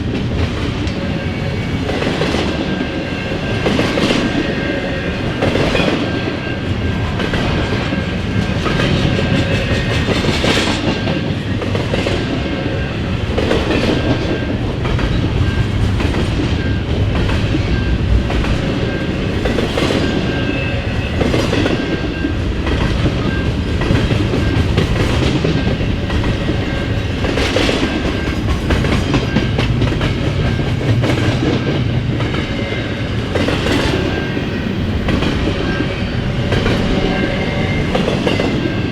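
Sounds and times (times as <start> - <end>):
freight train rolling past: 0.0 - 38.9
wheels clacking over rail joints: 21.2 - 32.5.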